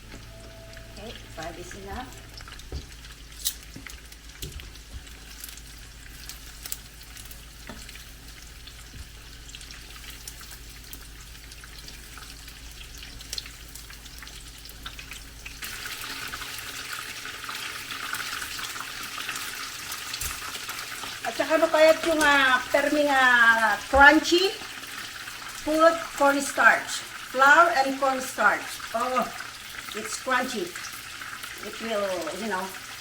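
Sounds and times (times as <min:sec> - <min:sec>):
chicken deep-frying in oil: 0:00.0 - 0:33.0.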